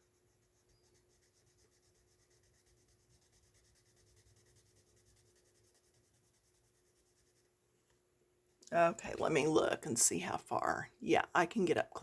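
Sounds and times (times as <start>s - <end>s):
pencil scratching on paper: 0.0s - 7.6s.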